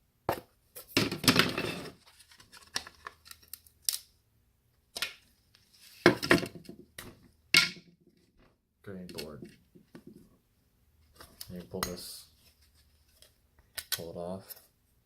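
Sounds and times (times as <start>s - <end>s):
plastic clicks and snaps: 13.6s - 14.1s.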